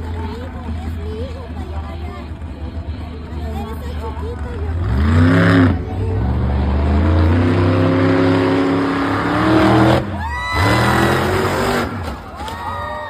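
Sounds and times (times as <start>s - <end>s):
monster truck engine revving: 4.3s - 12.4s.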